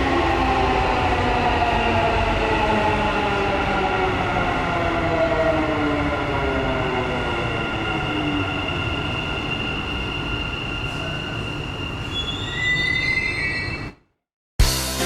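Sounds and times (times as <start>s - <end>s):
high-pitched wheel squeal: 8.1s - 14.0s.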